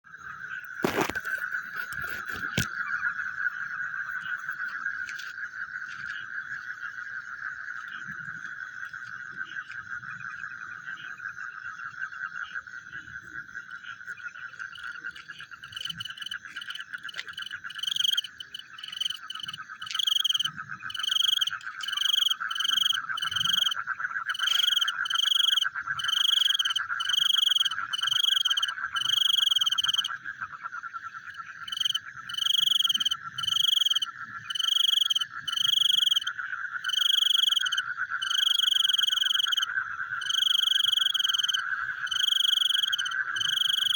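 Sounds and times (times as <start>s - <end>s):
frog calling: 0.1s - 43.9s.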